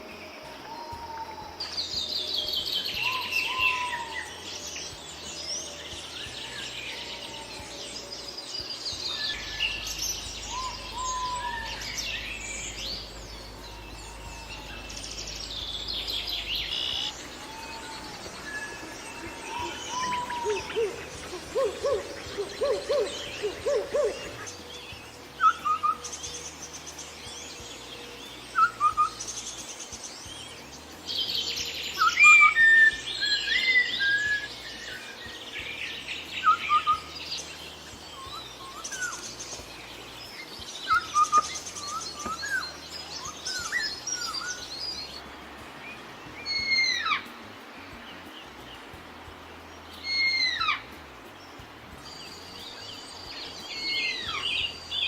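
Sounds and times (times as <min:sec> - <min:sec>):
low bird notes: 0:00.0 - 0:55.0
high bird twittering: 0:00.6 - 0:26.4.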